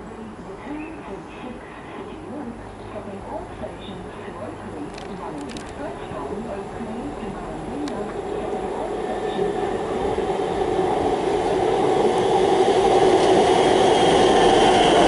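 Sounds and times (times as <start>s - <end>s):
electric train approaching: 5.8s - 15.0s.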